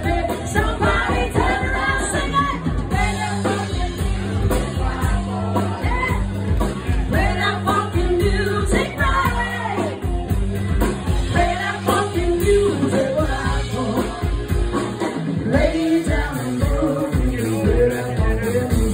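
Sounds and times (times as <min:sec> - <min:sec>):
live funk band playing: 0:00.0 - 0:18.9
person singing: 0:11.3 - 0:18.9.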